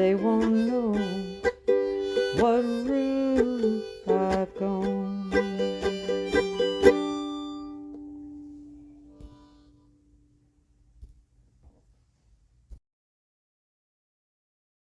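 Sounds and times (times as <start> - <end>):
acoustic plucked string instrument: 0.0 - 9.8.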